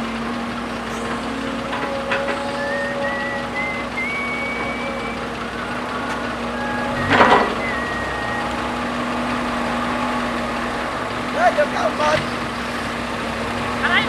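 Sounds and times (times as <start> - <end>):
diesel machinery running: 0.0 - 14.0
high whining tones: 0.0 - 14.0.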